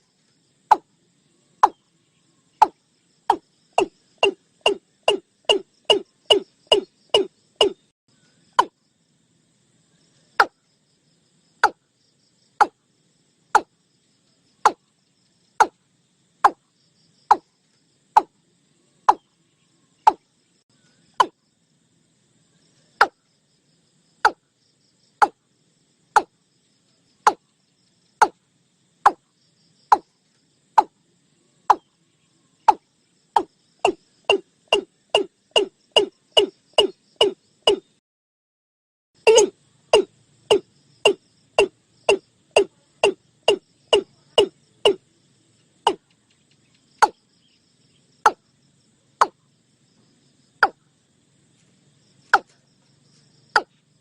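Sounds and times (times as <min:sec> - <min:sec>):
bird calling sharp notes: 0:03.8 - 0:07.8, 0:33.4 - 0:37.9, 0:39.2 - 0:45.0.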